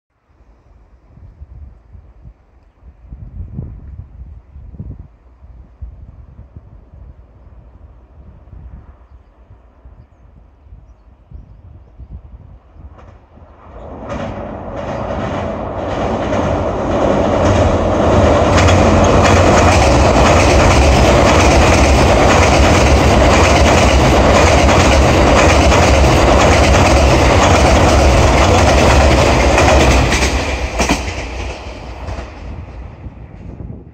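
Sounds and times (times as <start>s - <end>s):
train wheels rumbling and clattering: 12.8s - 33.9s.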